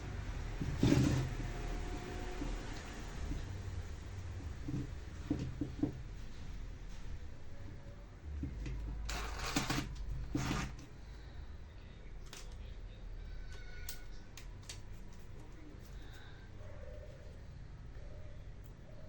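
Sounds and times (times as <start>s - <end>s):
scraping and rustling on workbench: 0.5s - 3.6s, 8.4s - 10.9s.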